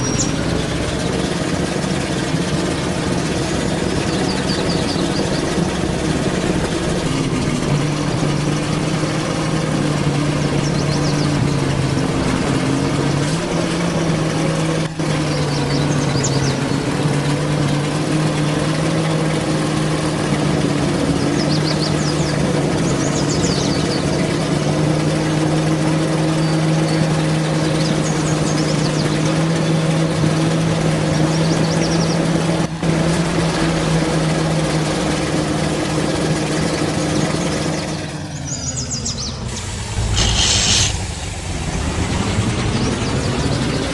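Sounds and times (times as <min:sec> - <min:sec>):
truck engine running: 0:00.0 - 0:43.9
short high squeaks: 0:39.4 - 0:41.0.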